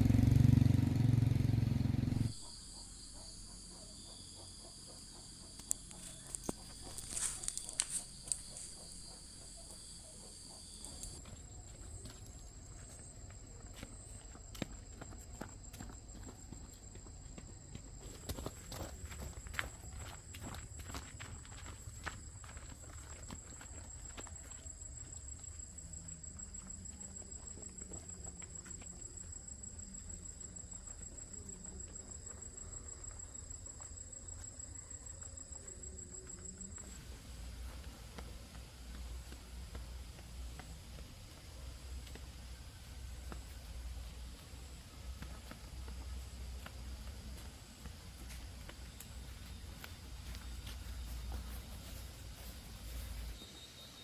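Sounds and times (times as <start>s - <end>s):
insects trilling: 0.0s - 54.0s
insect trilling: 2.2s - 11.2s.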